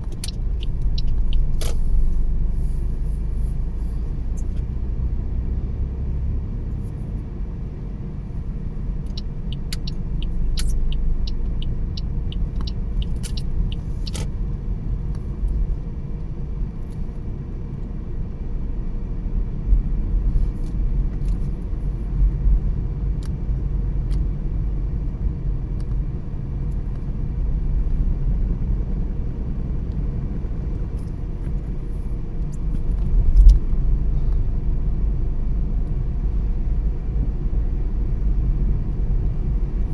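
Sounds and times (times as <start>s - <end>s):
even ticks: 0.0s - 1.8s, 9.0s - 14.3s
car tyres and engine rumble: 0.0s - 39.9s.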